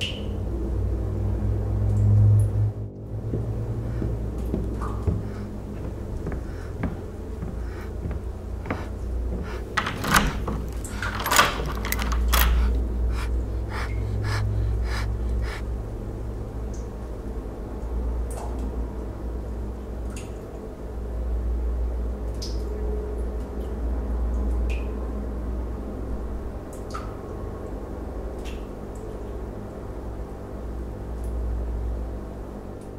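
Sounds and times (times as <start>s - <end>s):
sharp knocks and clicks: 3.2s - 15.6s.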